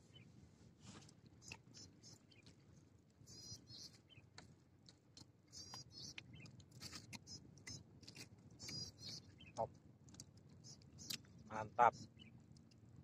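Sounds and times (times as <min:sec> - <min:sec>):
person chewing: 0:06.1 - 0:08.9.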